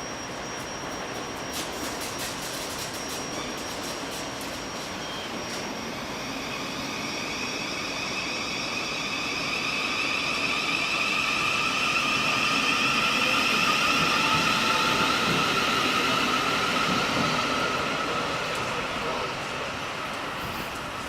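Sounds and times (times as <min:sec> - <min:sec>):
train rolling rumble: 0:11.1 - 0:21.0.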